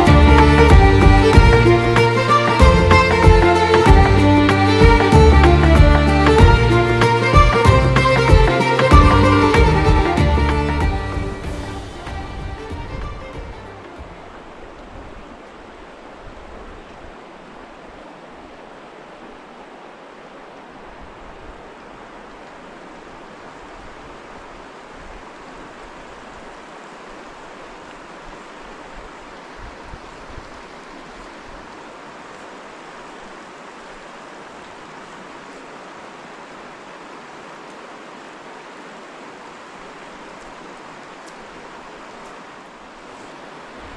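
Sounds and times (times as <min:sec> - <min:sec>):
river water rushing: 0:00.0 - 0:43.9.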